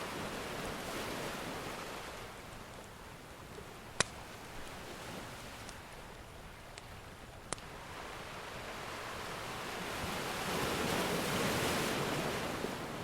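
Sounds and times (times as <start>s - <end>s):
wood fire popping: 3.5s - 4.8s
ocean wave surging: 7.7s - 13.0s.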